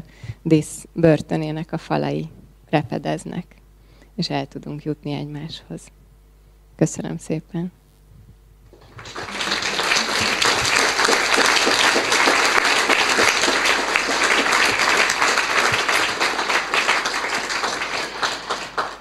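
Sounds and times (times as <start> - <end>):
audience applauding: 8.8 - 19.0.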